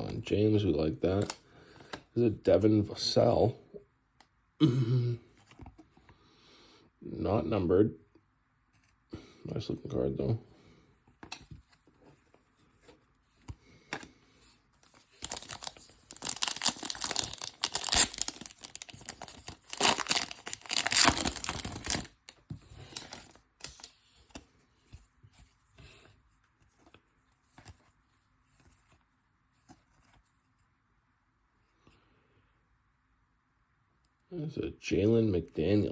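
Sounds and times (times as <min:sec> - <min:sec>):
cards clicking and rustling: 0:14.8 - 0:24.5
wrapper tearing and crinkling: 0:15.1 - 0:23.9.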